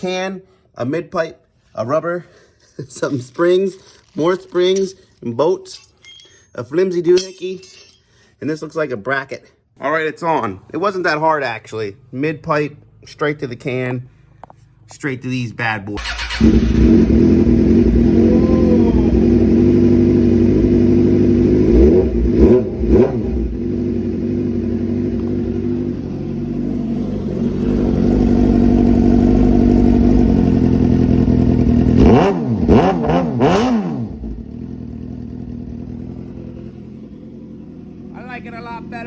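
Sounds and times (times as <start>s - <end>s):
motorcycle engine idling and revving: 16.0s - 39.0s.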